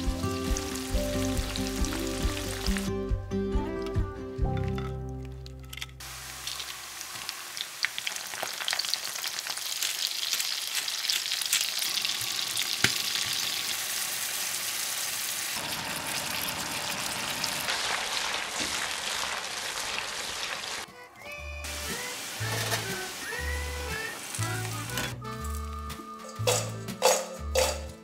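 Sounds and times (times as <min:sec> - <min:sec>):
shrimp sizzling in oil: 0:00.0 - 0:02.9, 0:06.0 - 0:20.9, 0:21.6 - 0:25.7.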